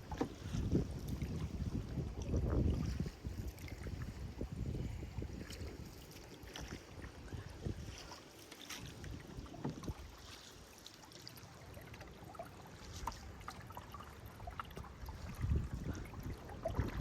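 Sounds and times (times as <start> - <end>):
wind buffeting microphone: 0.0 - 8.1, 15.0 - 17.0
paddle strokes in water: 0.0 - 17.0.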